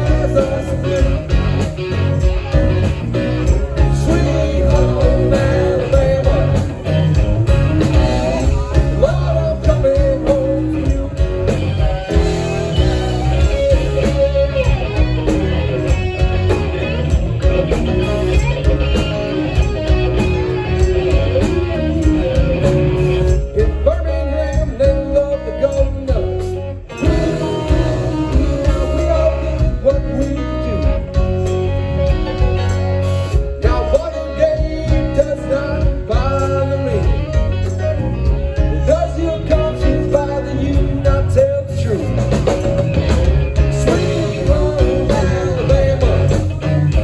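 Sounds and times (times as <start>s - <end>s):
person singing: 0.0s - 2.4s, 3.5s - 15.0s, 20.9s - 42.4s, 43.0s - 47.0s
blues-rock band playing: 0.0s - 47.0s.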